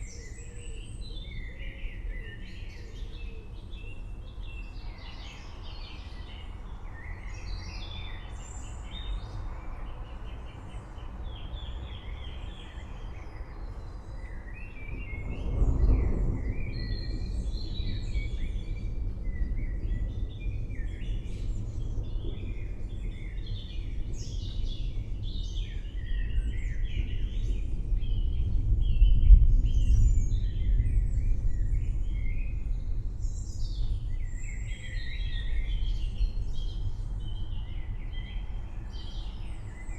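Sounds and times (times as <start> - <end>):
forest birds chirping: 0.0 - 39.9
distant thunder rumbling: 15.2 - 19.5.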